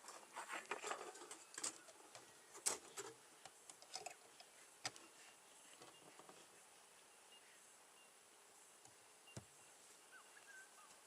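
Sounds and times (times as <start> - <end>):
beehive parts clicking and scraping: 0.0 - 6.6.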